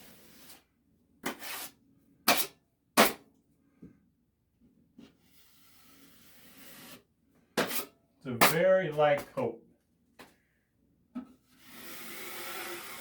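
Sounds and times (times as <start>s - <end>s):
drywall tools scraping: 0.0s - 3.2s, 5.3s - 7.0s, 7.6s - 9.5s.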